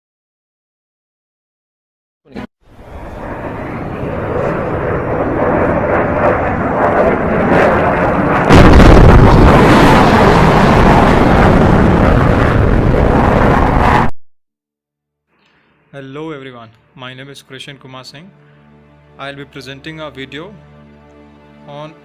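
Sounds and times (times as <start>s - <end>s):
jet rushing noise: 2.7s - 14.1s
sonic boom: 2.8s - 14.1s.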